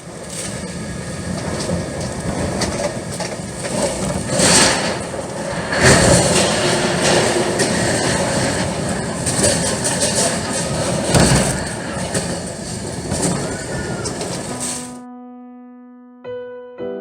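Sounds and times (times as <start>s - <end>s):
vehicle engine rumble and hiss: 8.4s - 15.0s.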